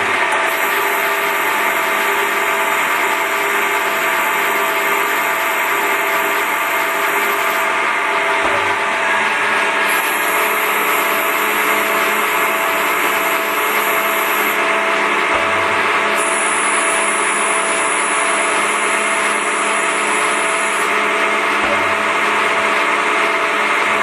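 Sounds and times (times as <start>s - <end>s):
lathe running: 0.0s - 24.0s
high thin whine: 9.7s - 22.1s.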